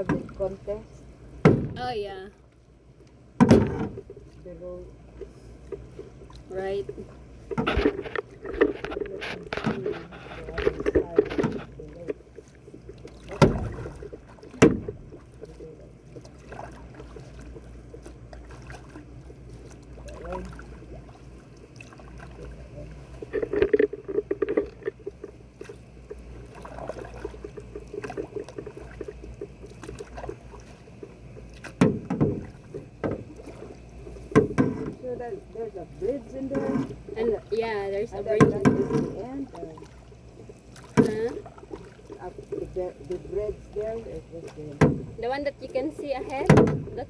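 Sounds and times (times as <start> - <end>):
paddles dipping in water: 0.0 - 47.0
sharp knocks: 1.4 - 1.9, 3.4 - 4.0, 14.6 - 15.0, 31.8 - 33.2.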